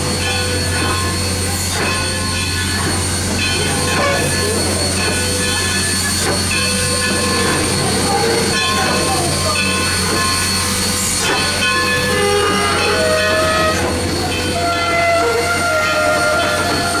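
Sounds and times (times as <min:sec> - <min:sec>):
train rumbling on track: 0:00.0 - 0:17.0
wheel squeal: 0:09.8 - 0:17.0.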